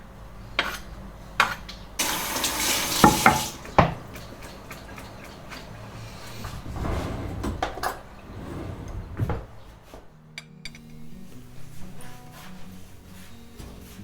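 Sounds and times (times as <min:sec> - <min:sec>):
dishes and utensils clinking: 0:00.6 - 0:06.7.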